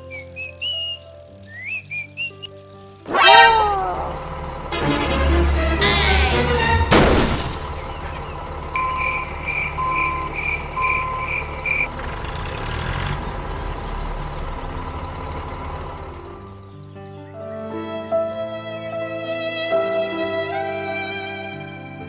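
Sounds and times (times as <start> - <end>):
heavy vehicle engine running: 0.0 - 17.0
reversing alarm beeping: 3.1 - 4.3, 8.7 - 11.9.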